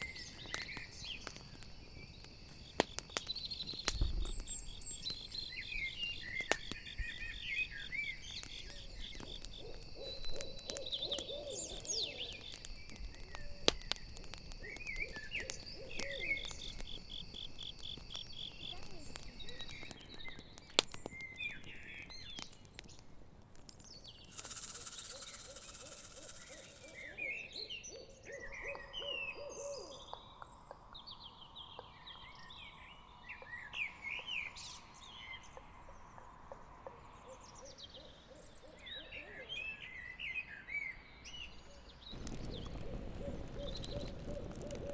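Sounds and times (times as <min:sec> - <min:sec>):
campfire crackling and popping: 0:00.0 - 0:27.3, 0:41.4 - 0:44.9
crickets trilling: 0:00.0 - 0:27.6, 0:28.3 - 0:39.9, 0:42.1 - 0:44.9
owl hooting: 0:08.7 - 0:12.4, 0:14.7 - 0:16.8, 0:24.3 - 0:30.2
loud hiss: 0:24.3 - 0:27.2.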